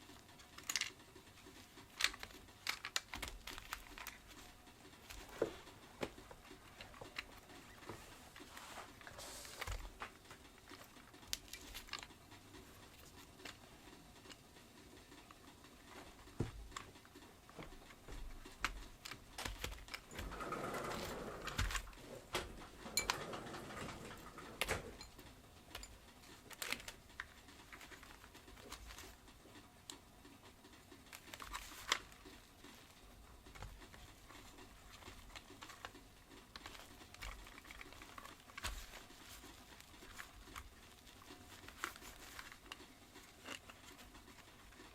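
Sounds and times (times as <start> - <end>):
rubbing and rustling: 0.0 - 29.8, 30.9 - 44.9
plastic parts clicking: 0.0 - 44.9.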